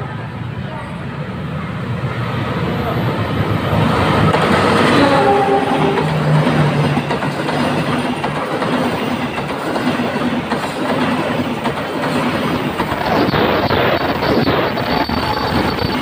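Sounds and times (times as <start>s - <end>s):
train wheels clattering: 4.2s - 16.0s.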